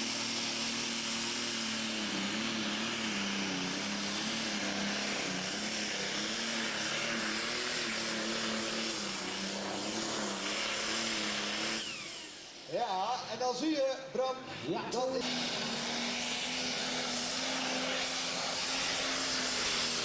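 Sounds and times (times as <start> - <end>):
vehicle engine at full power: 0.0 - 10.6.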